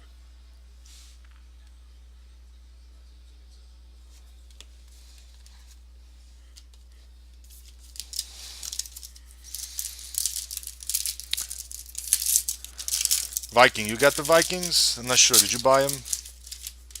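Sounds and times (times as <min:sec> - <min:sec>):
steady low hum: 0:00.0 - 0:17.0
foil wrapper tearing and crinkling: 0:07.6 - 0:17.0.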